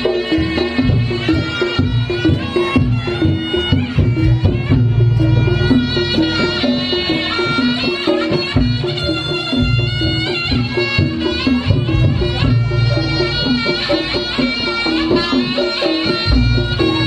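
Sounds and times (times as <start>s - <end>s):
shrill shawm melody: 0.0s - 17.0s
deep drum and gong strokes: 4.0s - 6.8s.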